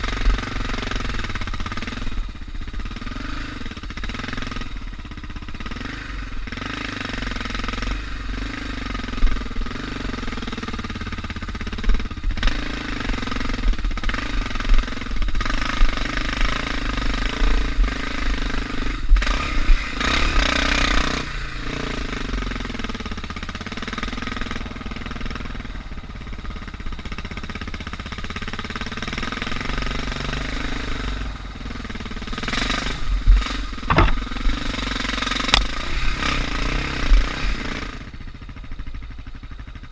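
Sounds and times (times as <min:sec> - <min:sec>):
motorcycle engine running: 0:00.0 - 0:39.9
short sharp knocks: 0:33.8 - 0:34.4.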